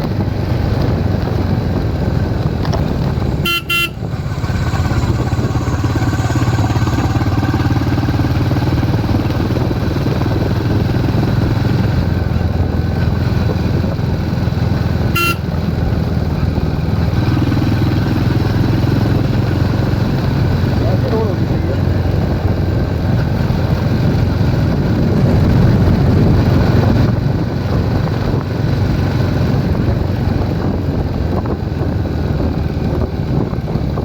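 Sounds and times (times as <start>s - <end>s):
motorcycle engine running: 0.0s - 34.0s
horn beeps: 3.4s - 7.3s, 15.1s - 15.5s.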